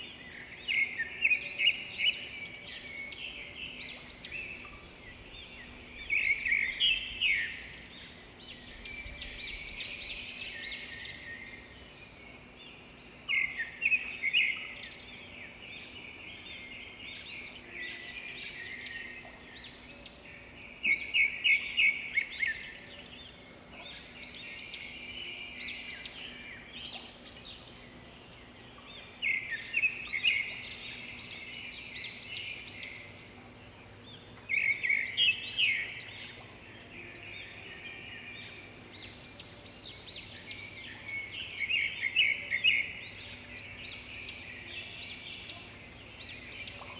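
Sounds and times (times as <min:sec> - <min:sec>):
faint chirping of other birds: 0:00.0 - 0:46.9.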